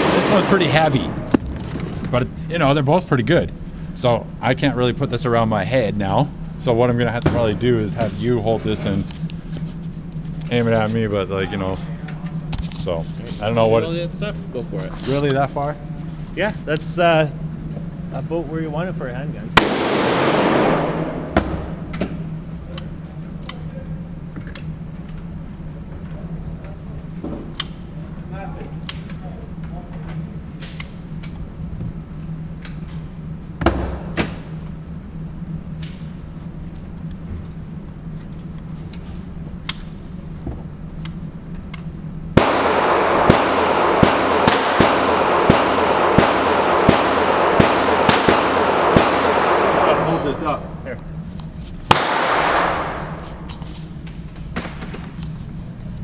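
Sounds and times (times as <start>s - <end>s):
steady low hum: 0.0s - 56.0s
distant gunshots: 19.6s - 21.9s, 42.4s - 50.6s, 51.9s - 53.5s.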